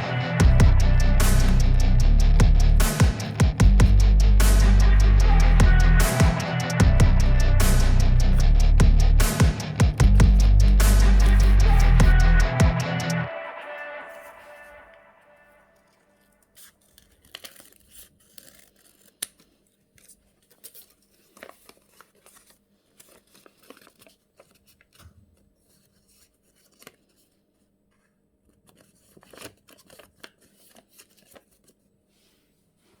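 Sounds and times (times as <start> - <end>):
paper crinkling and rustling: 15.8 - 33.0.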